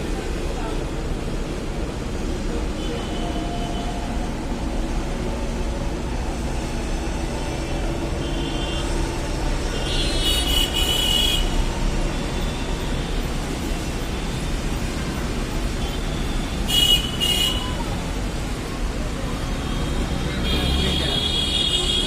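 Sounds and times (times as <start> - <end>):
road traffic rumble: 0.0 - 22.0
vehicle horn: 19.8 - 22.0.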